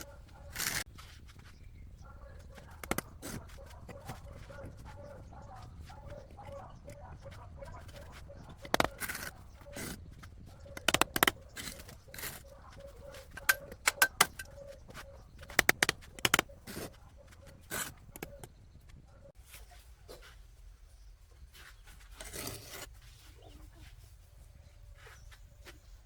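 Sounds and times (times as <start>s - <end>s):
sharp knocks and clicks: 2.4s - 18.6s.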